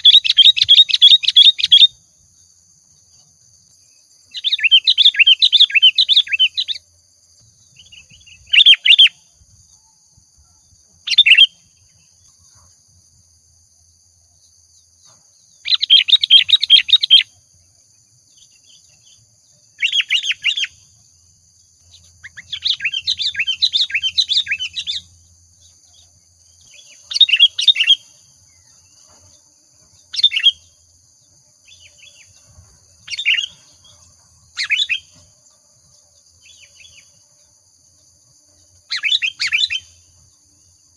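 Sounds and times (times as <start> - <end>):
bulbul singing: 0.0 - 2.0, 4.3 - 6.8, 15.6 - 17.4, 19.8 - 20.9, 21.8 - 28.7, 30.0 - 30.8
faint steady high whine: 0.0 - 40.9.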